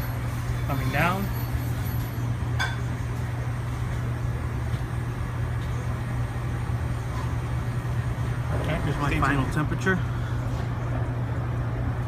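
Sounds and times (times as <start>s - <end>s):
refrigerator compressor hum: 0.0s - 12.0s.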